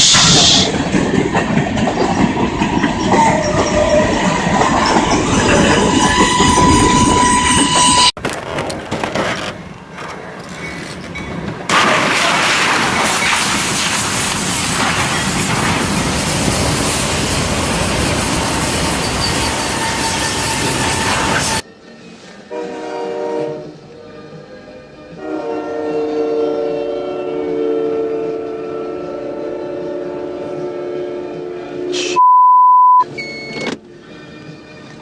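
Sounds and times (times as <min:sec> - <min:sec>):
train rumbling on rails: 0:00.0 - 0:21.7
steady high tone: 0:04.8 - 0:08.2.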